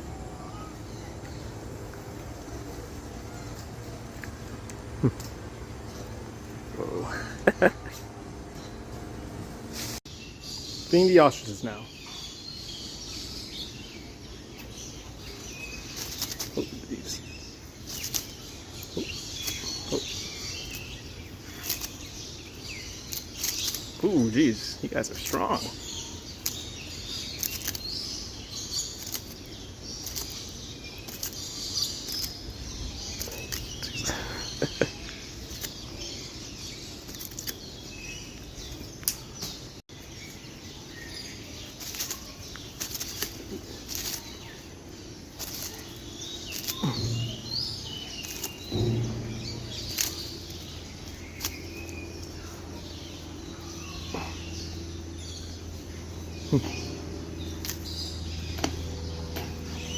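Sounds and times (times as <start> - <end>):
small birds chirping: 0.0 - 59.9
low steady hum: 42.6 - 59.9.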